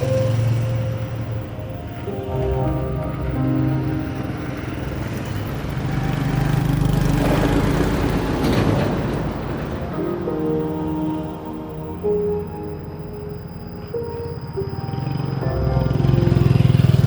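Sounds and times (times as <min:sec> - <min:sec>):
wind and road noise: 0:00.0 - 0:11.3.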